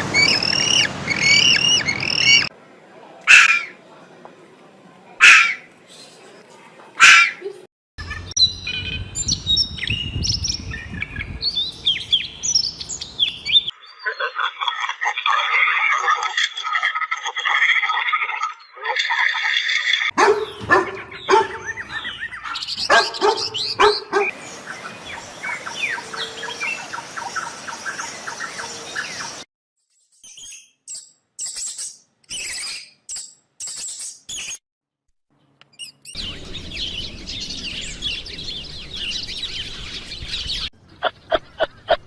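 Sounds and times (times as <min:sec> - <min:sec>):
birds chirping and calling: 0:00.0 - 0:02.5, 0:07.0 - 0:14.5, 0:20.1 - 0:29.4, 0:35.7 - 0:42.0.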